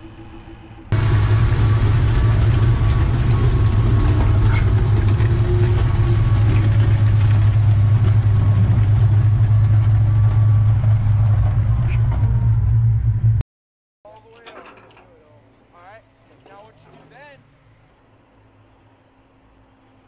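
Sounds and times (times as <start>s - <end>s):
diesel engine droning: 0.0s - 13.4s.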